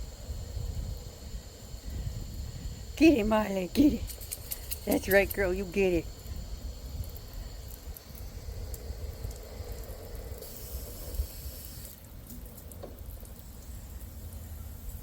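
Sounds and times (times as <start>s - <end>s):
water spraying into a pool: 7.0s - 15.0s.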